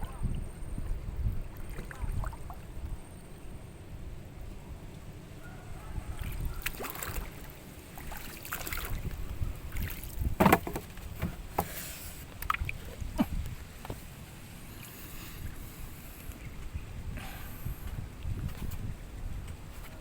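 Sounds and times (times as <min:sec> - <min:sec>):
wind rumble on microphone: 0:00.0 - 0:20.0
short knocks and clatters: 0:10.4 - 0:11.7.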